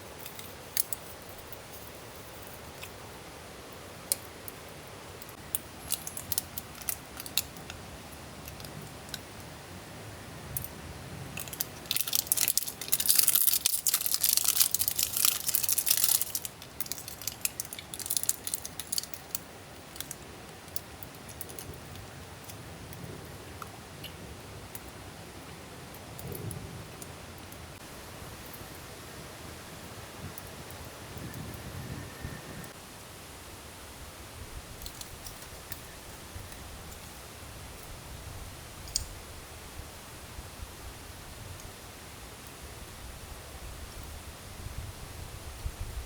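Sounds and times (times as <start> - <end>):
low fire hiss: 0.0 - 46.0
campfire crackling and popping: 4.0 - 9.4, 10.6 - 25.0.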